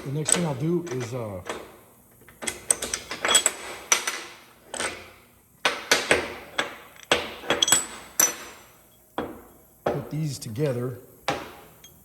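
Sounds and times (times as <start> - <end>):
steel pieces clanking: 2.4 - 5.0, 6.6 - 9.0.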